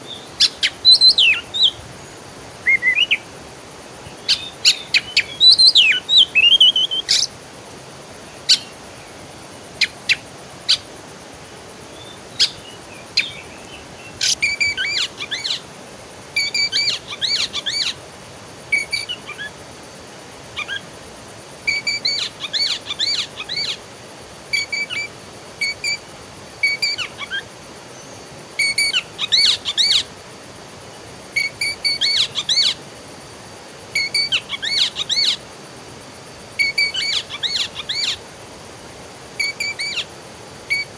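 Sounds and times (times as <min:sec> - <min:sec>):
songbird chirping: 0:00.0 - 0:03.3, 0:04.0 - 0:07.4, 0:08.2 - 0:10.9, 0:11.9 - 0:15.7, 0:16.4 - 0:18.0, 0:33.9 - 0:35.4, 0:36.6 - 0:38.2, 0:39.4 - 0:40.1
faint hiss: 0:00.0 - 0:40.9.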